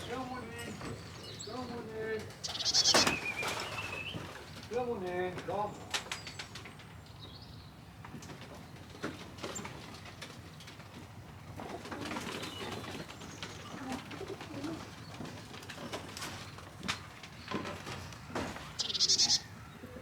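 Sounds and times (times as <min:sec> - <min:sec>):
pigeons cooing: 0:11.6 - 0:15.4, 0:18.7 - 0:20.0.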